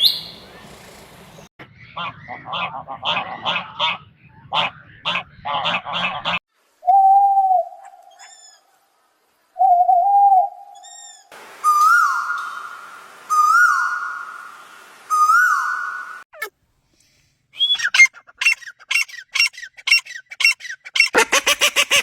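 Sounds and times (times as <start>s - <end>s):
high whistled bird call: 9.6s - 16.2s, 17.6s - 21.2s
rough repeated bird calls: 17.6s - 22.0s.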